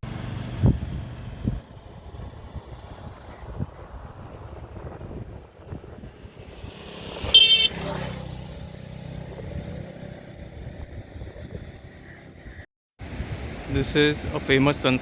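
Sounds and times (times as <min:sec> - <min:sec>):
traffic noise: 0:00.0 - 0:15.0
vehicle horn toot: 0:07.2 - 0:08.0.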